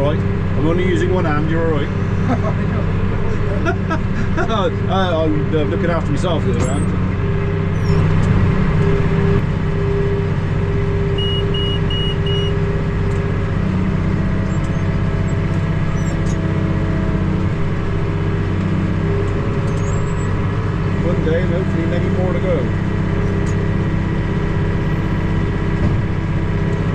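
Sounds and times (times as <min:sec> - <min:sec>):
tractor engine running under load: 0:00.0 - 0:26.9
short electronic beeps: 0:11.2 - 0:12.6.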